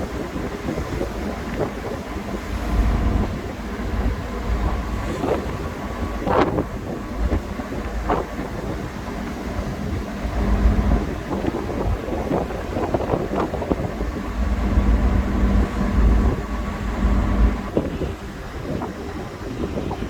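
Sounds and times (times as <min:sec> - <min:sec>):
ship low hum: 0:00.0 - 0:20.0
wind buffeting microphone: 0:00.0 - 0:20.0.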